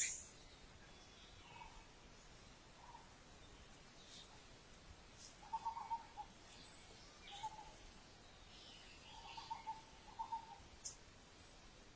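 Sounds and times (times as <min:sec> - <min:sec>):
thin high bird chirps: 0:00.0 - 0:01.8
low warbling bird call: 0:05.4 - 0:06.3.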